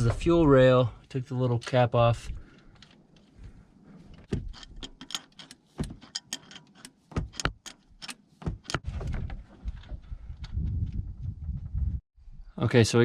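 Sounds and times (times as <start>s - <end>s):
sharp metallic clicks and taps: 4.3s - 8.8s.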